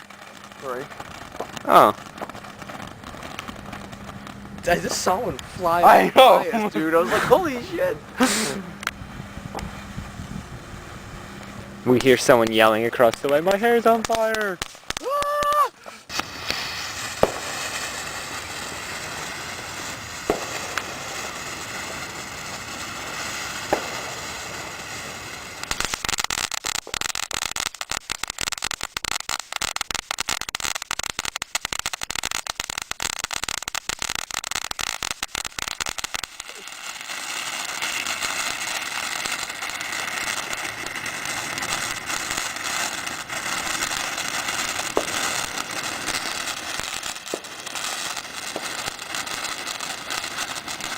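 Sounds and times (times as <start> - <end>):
sharp pops: 0.0 - 9.8, 11.4 - 16.6, 20.3 - 20.9, 23.7 - 24.1, 25.6 - 36.7
fireworks hissing spray: 0.0 - 50.9
rapid fireworks crackling: 0.0 - 50.9.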